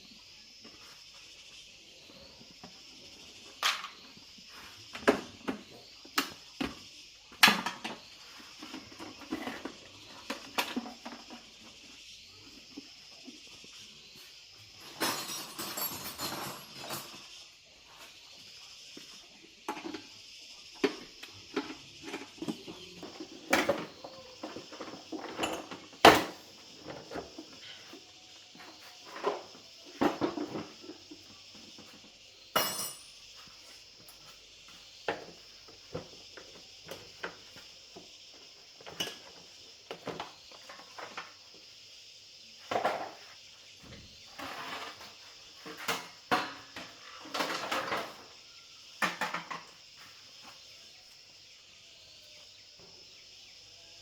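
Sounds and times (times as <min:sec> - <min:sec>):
metallic clinks of tools: 0:15.0 - 0:17.2, 0:32.5 - 0:33.3
steady high hiss: 0:22.8 - 0:54.0.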